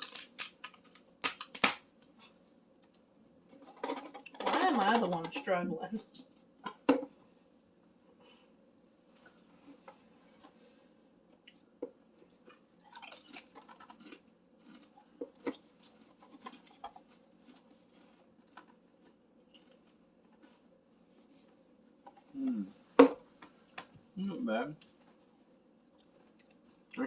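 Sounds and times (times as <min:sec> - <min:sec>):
snack bag crinkling: 0:00.0 - 0:02.2, 0:12.5 - 0:20.6
potato chips being eaten: 0:12.4 - 0:20.6
person humming: 0:22.4 - 0:22.7.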